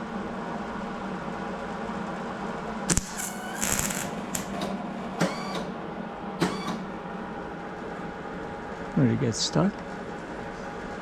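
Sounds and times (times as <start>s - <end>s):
steady low hum: 0.7s - 5.2s.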